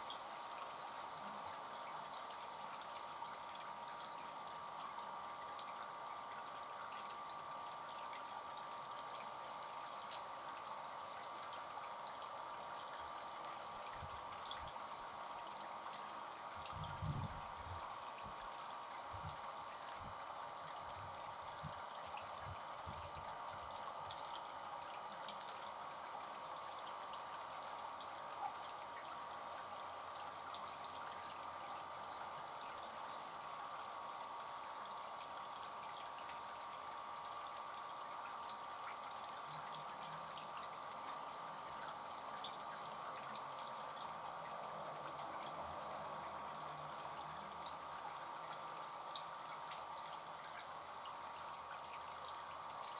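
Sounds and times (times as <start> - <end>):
fountain water trickling and splashing: 0.0 - 52.9.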